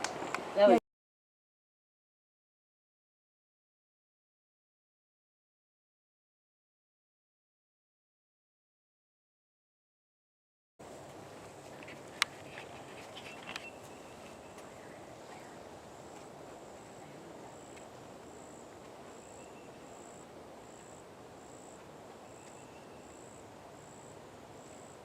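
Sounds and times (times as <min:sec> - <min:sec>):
insect chirping: 0:11.9 - 0:25.0.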